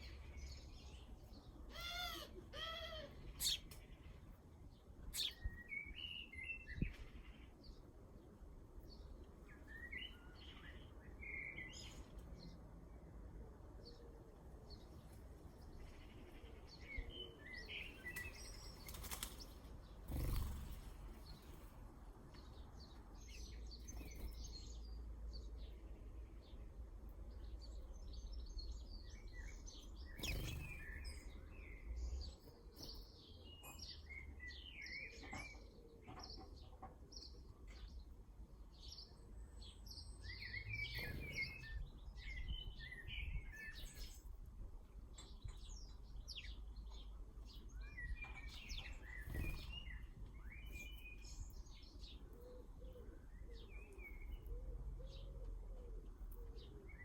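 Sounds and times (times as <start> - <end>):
small birds chirping: 0.0 - 14.0, 14.7 - 57.0
wing flutters: 18.1 - 21.7.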